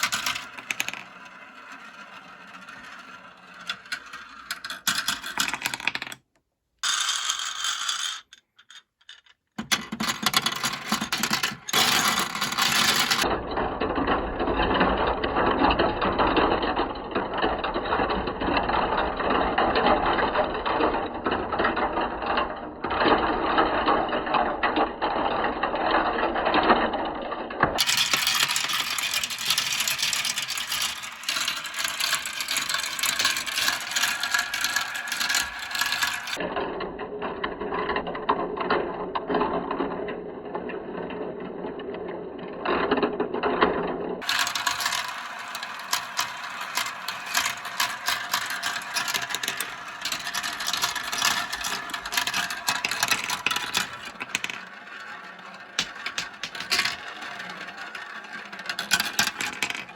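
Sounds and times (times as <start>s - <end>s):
marbles clattering down plastic track: 0.0s - 6.2s, 6.8s - 13.4s, 27.6s - 36.5s, 44.2s - 59.9s.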